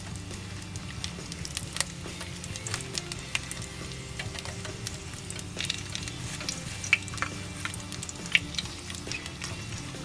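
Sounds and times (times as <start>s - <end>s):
squid sizzling in oil: 0.0s - 10.0s
oil crackling pops: 0.6s - 10.0s.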